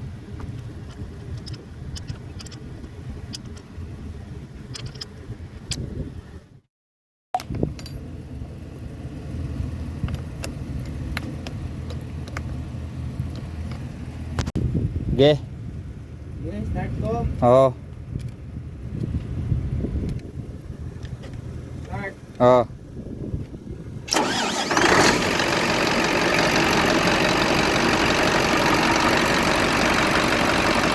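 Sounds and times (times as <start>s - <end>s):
diesel engine idling: 24.1s - 30.9s
starter motor whine: 24.1s - 30.9s.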